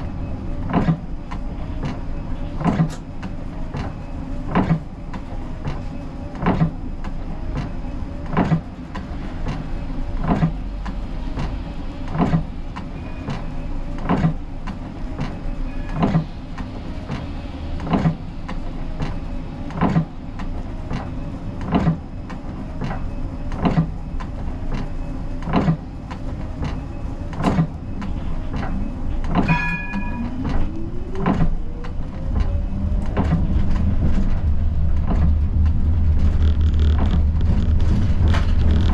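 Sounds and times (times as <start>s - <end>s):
steady low hum: 0.0s - 38.9s
tram motor whine: 0.0s - 38.9s
short ringing tone: 29.5s - 30.3s.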